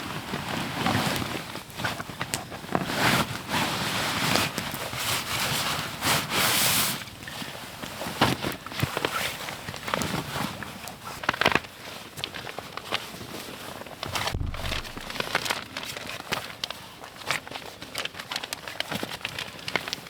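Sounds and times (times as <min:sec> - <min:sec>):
soft low thump: 0:14.2 - 0:15.4
campfire crackling and popping: 0:14.3 - 0:15.4.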